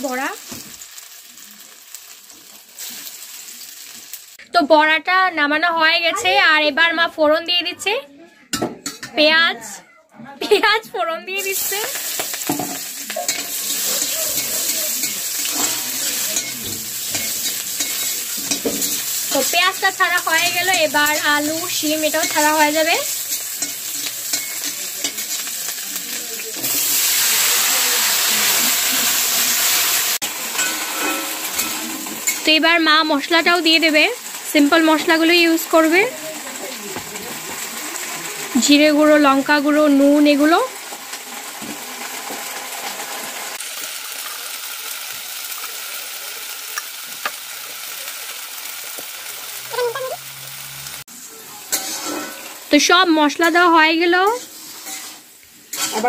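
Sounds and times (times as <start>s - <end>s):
onions sizzling in hot oil: 0.0s - 6.4s, 11.3s - 56.0s
spatula scraping pan: 12.2s - 25.8s, 30.5s - 32.4s, 51.6s - 52.6s, 53.4s - 56.0s.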